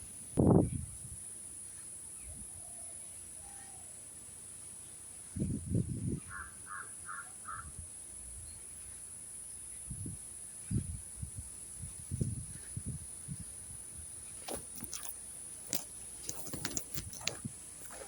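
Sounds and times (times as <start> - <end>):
bird calls: 6.2 - 7.7.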